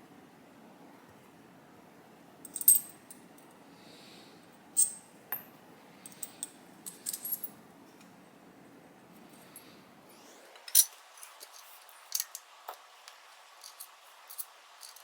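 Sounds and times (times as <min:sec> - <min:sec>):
metal objects clinking: 0:04.8 - 0:05.1, 0:13.6 - 0:15.0.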